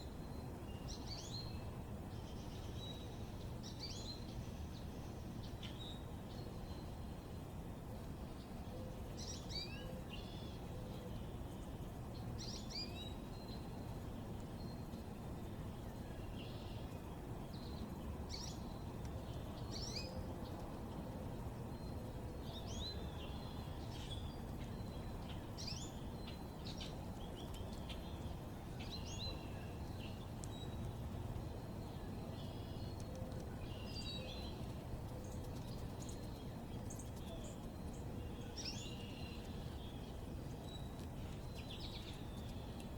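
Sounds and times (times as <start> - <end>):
small birds chirping: 9.2 - 42.9.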